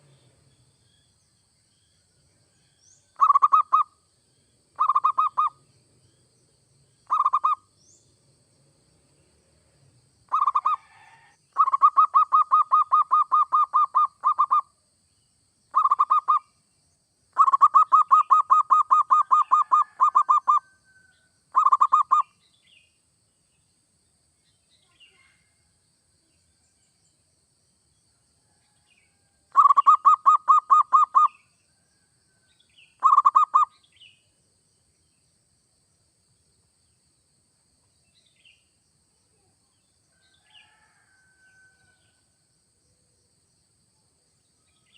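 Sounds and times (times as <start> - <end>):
dove cooing: 4.8 - 5.6, 7.1 - 7.6, 10.3 - 14.6, 17.4 - 20.6, 21.6 - 22.2, 33.0 - 33.7.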